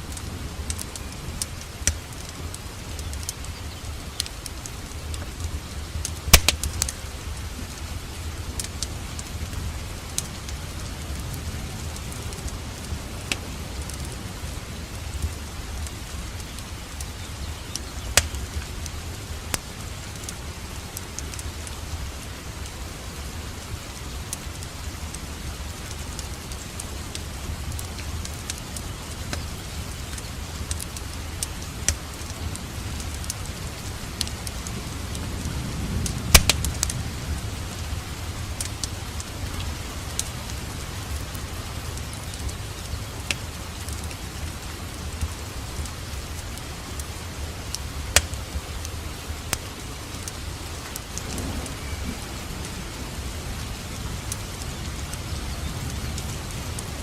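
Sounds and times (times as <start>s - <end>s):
steady rain: 0.0s - 57.0s
wood fire crackling: 0.0s - 57.0s.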